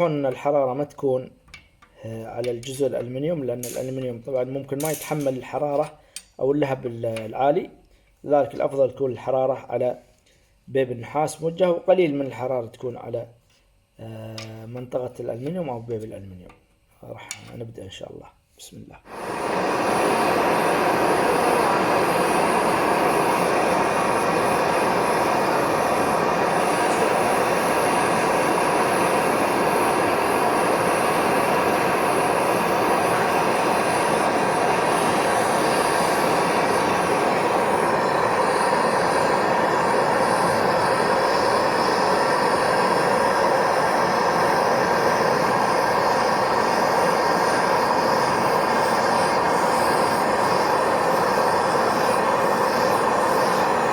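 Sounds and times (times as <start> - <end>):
gas torch flame hissing: 1.9 - 10.4, 19.0 - 53.9.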